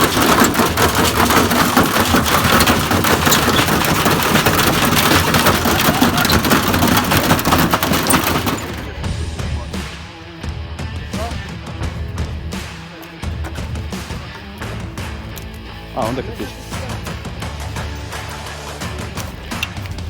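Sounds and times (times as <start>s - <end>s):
washing machine rattling and banging: 0.0s - 9.6s.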